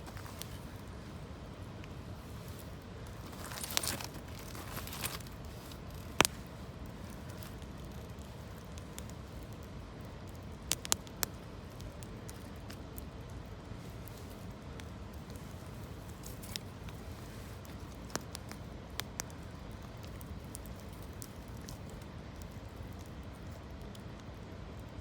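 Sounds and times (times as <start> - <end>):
steady background hiss: 0.0 - 25.0
campfire sharp pops: 5.2 - 9.7, 10.3 - 12.8, 17.6 - 23.2.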